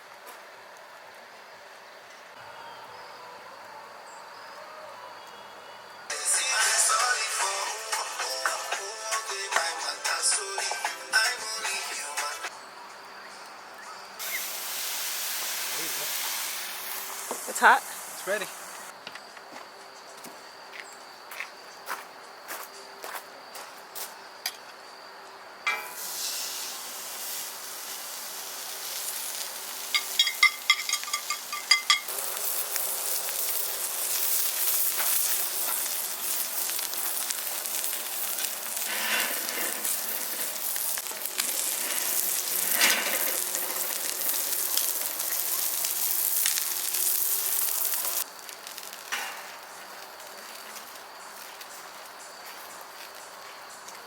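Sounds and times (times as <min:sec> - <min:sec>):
steak sizzling in a skillet: 0:14.2 - 0:18.9, 0:25.7 - 0:49.7
metallic clinks: 0:30.0 - 0:32.1.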